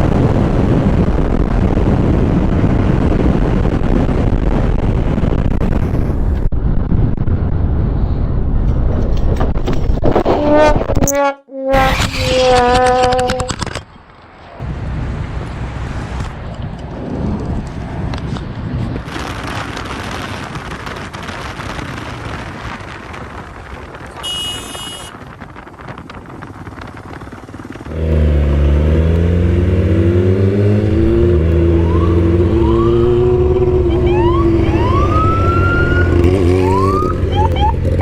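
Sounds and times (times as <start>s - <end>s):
wind rush on microphone: 0.0s - 11.2s, 14.6s - 38.0s
motorcycle engine: 24.1s - 38.0s
police siren: 31.7s - 38.0s.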